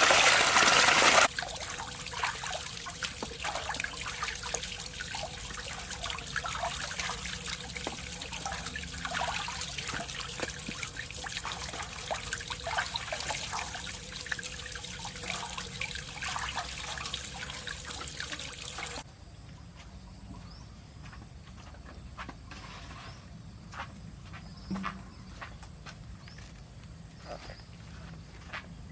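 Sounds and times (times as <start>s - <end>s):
water trickling and splashing: 0.0s - 19.1s.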